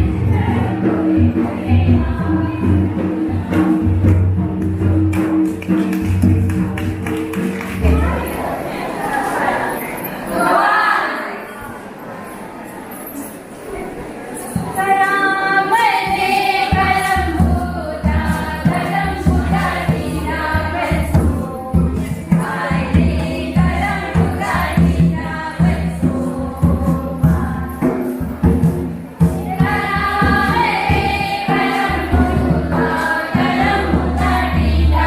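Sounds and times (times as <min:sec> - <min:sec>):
group singing folk song: 0:00.0 - 0:06.4, 0:07.9 - 0:11.5, 0:14.6 - 0:35.0
steady drum beat: 0:15.9 - 0:35.0.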